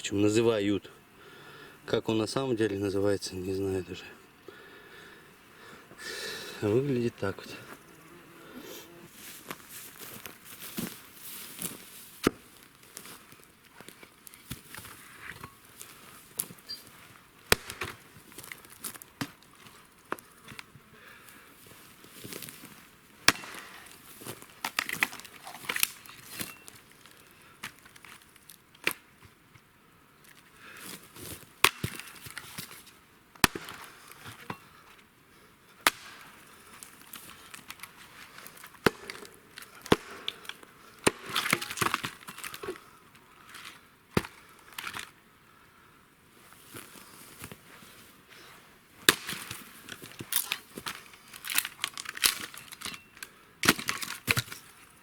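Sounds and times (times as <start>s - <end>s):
dry wood cracking: 9.5s - 29.3s, 30.2s - 35.0s, 35.8s - 45.2s, 49.0s - 55.0s.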